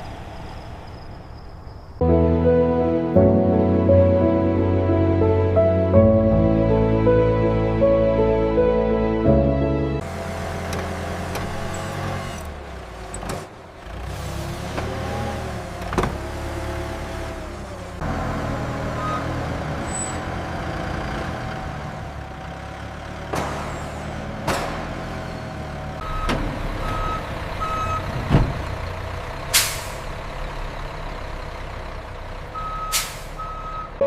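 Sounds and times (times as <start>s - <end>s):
heavy truck engine running: 0.0s - 34.0s
reversing beeps: 26.0s - 28.1s, 32.6s - 34.0s
air brake hisses: 29.5s - 30.1s, 32.9s - 33.4s.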